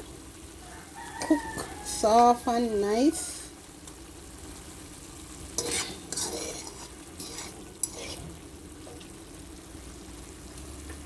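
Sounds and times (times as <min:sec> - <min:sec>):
spoon scraping in pot: 0:05.5 - 0:08.4.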